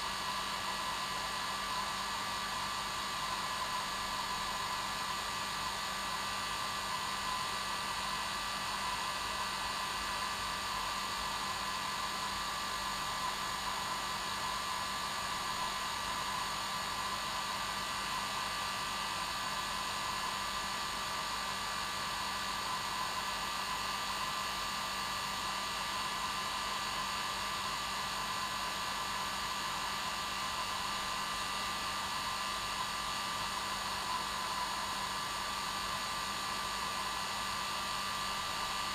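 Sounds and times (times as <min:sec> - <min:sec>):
hair dryer running: 0:25.8 - 0:38.9.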